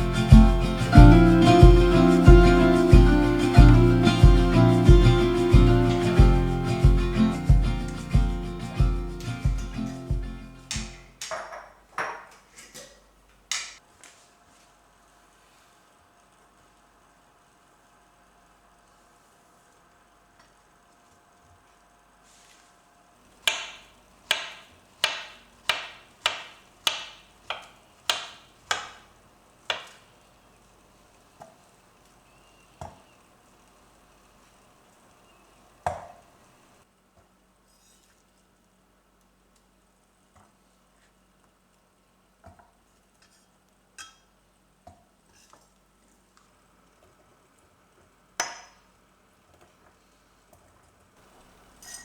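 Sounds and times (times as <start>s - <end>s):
kitchenware clinks and knocks: 11.2s - 12.9s
knife chopping on cutting board: 23.5s - 29.0s, 29.7s - 30.0s.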